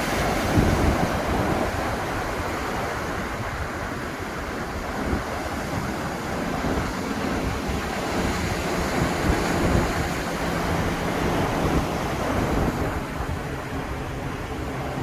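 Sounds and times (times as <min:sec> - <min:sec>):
ocean surf washing: 0:00.0 - 0:15.0
wind buffeting microphone: 0:00.0 - 0:15.0.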